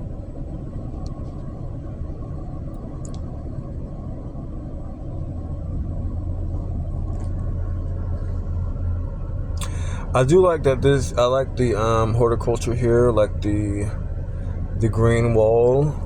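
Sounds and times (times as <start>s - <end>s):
low steady rumble: 0.0s - 16.0s
faint clicks: 2.7s - 3.3s.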